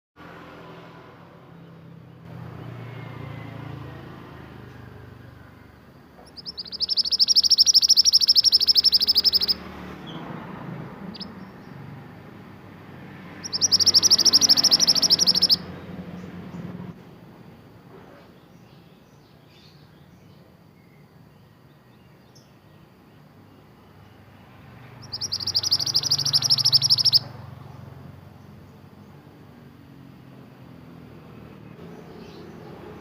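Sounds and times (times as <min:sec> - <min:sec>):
songbird fast trills: 0:02.3 - 0:12.1, 0:13.2 - 0:16.6, 0:23.4 - 0:29.4.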